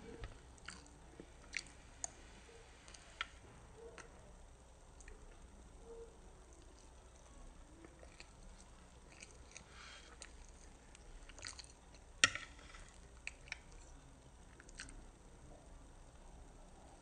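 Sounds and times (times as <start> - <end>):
child chewing and mouth smacks: 0.0 - 4.2, 6.4 - 15.1.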